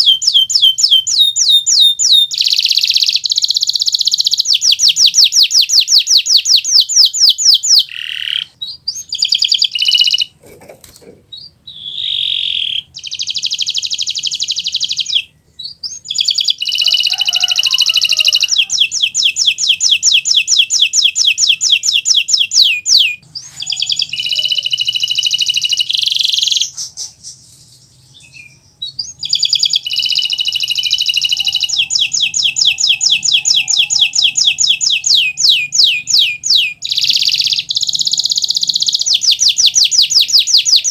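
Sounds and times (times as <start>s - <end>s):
canary singing trills: 0.0s - 10.4s, 11.0s - 40.9s.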